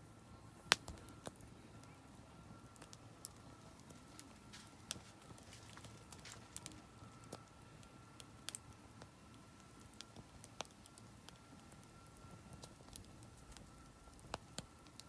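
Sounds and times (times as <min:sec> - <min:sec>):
firewood crackling and popping: 0:00.5 - 0:15.0.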